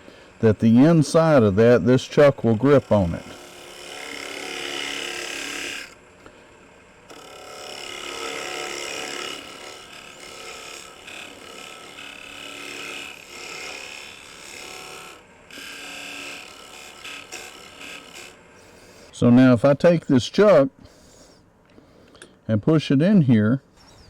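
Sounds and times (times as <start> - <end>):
lathe motor hum: 0.0 - 19.2
tool scraping spinning wood: 0.0 - 19.3.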